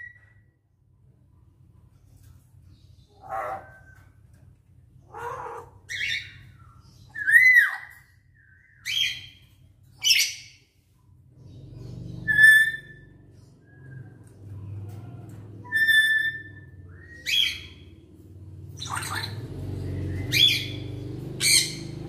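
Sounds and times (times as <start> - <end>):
lories squawking and whistling: 3.0 - 4.2, 5.1 - 10.6, 11.8 - 14.4, 15.6 - 22.0.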